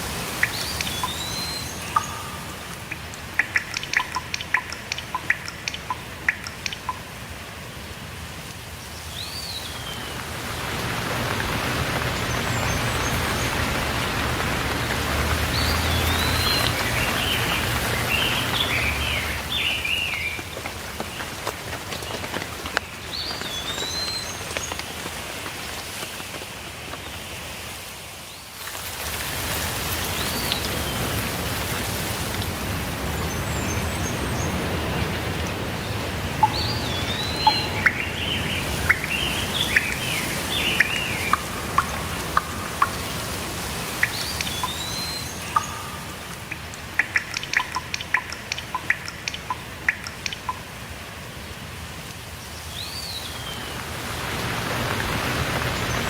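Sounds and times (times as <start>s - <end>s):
birds chirping: 0.0s - 7.2s, 8.9s - 25.1s, 33.0s - 50.7s
steady rainfall: 0.0s - 56.0s
sharp drops or ticks: 0.3s - 7.1s, 40.8s - 50.7s
bird rising and falling call: 36.4s - 50.5s.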